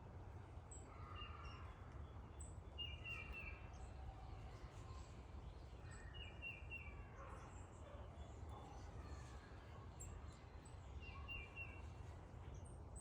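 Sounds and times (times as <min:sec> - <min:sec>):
songbirds chirping: 0:09.9 - 0:13.0.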